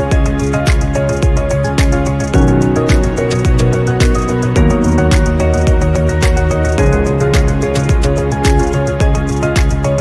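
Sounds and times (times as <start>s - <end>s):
kick drum beat: 0.1s - 9.9s
sustained synthesizer notes: 2.1s - 9.3s.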